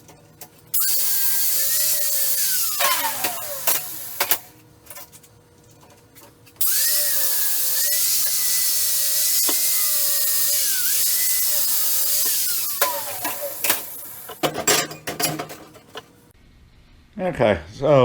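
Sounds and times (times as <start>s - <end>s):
power tool cutting metal: 0.7s - 4.5s, 6.6s - 16.0s.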